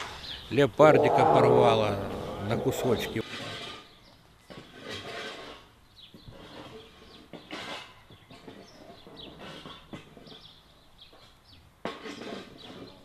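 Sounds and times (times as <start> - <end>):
small birds chirping: 0.0 - 3.2.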